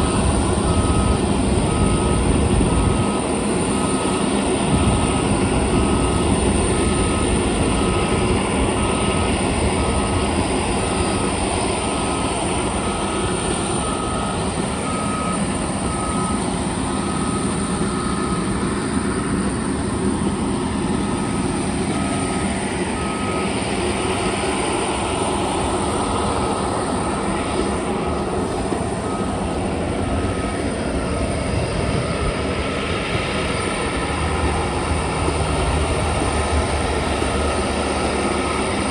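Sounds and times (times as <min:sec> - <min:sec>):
short beeps: 0:00.0 - 0:18.6
aircraft turbine engines whining: 0:00.0 - 0:38.9.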